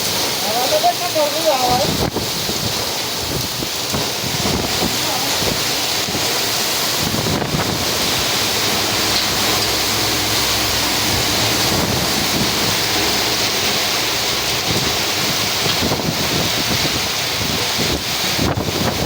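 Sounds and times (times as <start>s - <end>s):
heavy rain pouring: 0.0s - 19.0s
wind rumbling on microphone: 0.0s - 19.0s.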